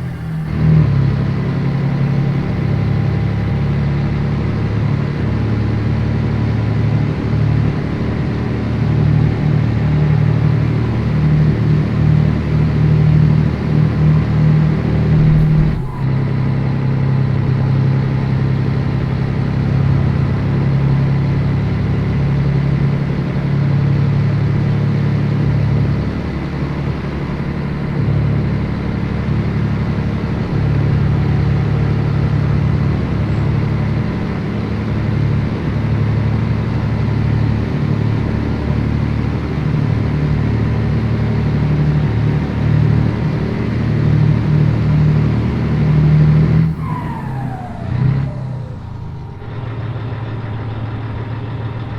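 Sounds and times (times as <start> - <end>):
truck diesel engine running: 0.0 - 16.6, 39.2 - 51.9.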